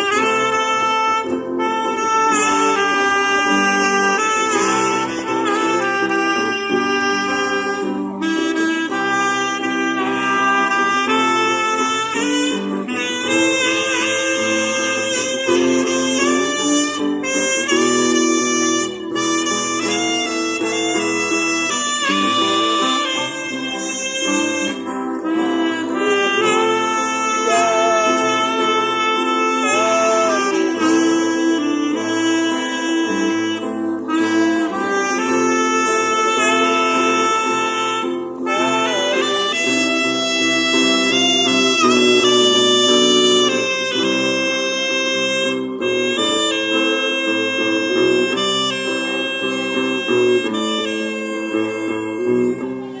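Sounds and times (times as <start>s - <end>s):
saxophone melody: 0.0s - 53.0s.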